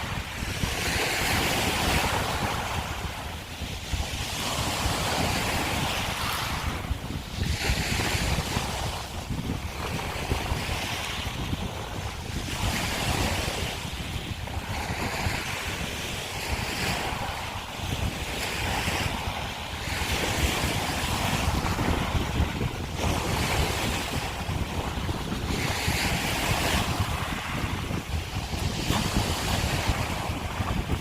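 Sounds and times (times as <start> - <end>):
wind rumbling on microphone: 0.0 - 31.0.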